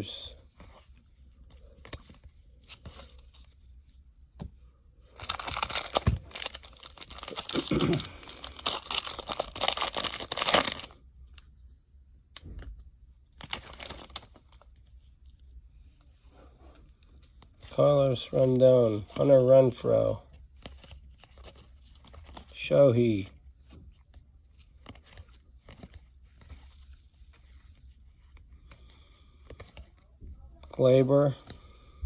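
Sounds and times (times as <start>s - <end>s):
cards rustling: 0.0s - 11.5s, 13.3s - 15.2s, 16.8s - 31.6s
foil wrapper tearing and crinkling: 5.2s - 11.0s, 13.4s - 14.4s.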